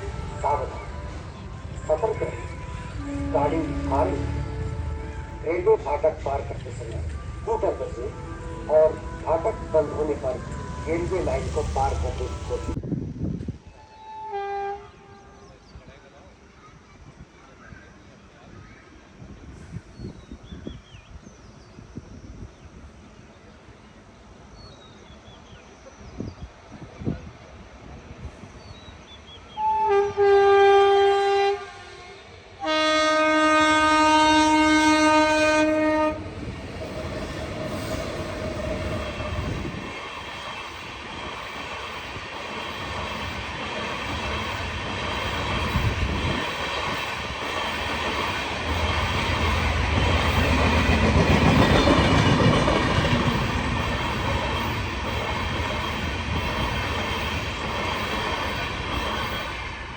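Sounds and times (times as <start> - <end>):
train horn blasts: 0.0 - 5.9, 6.8 - 12.8, 13.7 - 15.6, 29.6 - 36.5
train passing over crossing: 0.0 - 14.5, 29.2 - 59.9.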